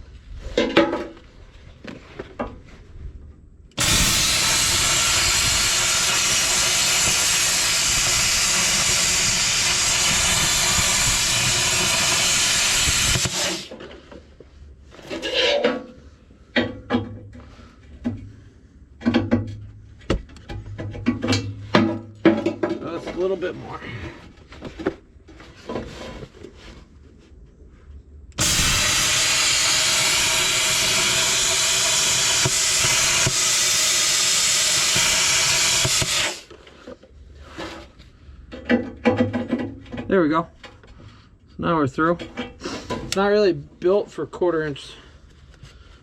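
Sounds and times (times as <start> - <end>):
plasma cutter hissing: 3.8 - 13.7, 28.4 - 36.5.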